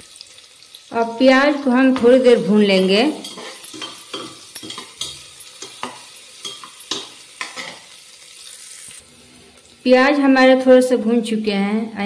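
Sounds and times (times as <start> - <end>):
onion sizzling faintly: 0.0 - 12.0
metal spoon scraping a pot: 3.1 - 7.9.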